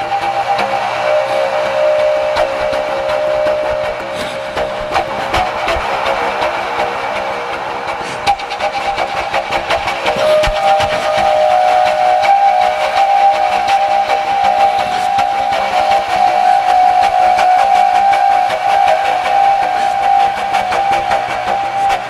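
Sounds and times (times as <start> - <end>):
held whistle-like tone: 0.0 - 22.0.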